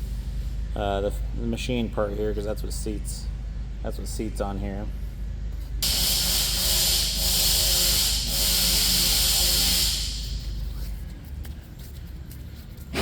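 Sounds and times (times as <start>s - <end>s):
pressurised gas hissing: 5.8s - 10.6s.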